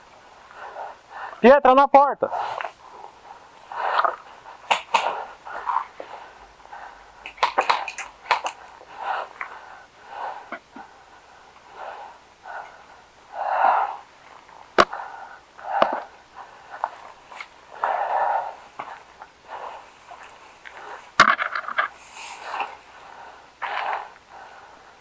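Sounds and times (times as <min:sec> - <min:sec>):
heavy wheezy breathing: 0:00.0 - 0:01.4, 0:02.3 - 0:25.0
sharp clicks and cracks: 0:02.5 - 0:09.6.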